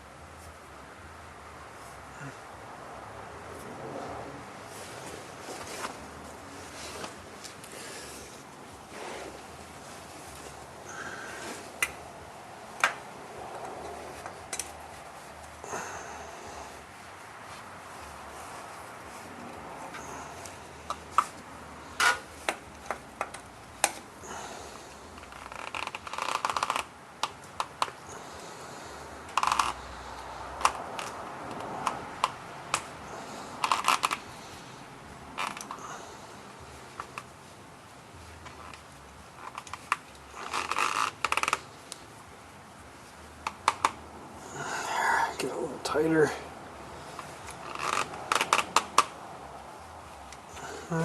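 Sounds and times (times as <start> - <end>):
light scraping: 3.6 - 11.8.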